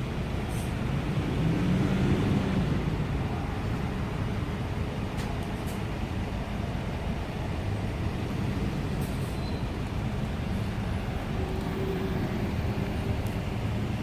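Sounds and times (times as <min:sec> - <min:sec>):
road vehicle rumble: 0:00.0 - 0:14.0.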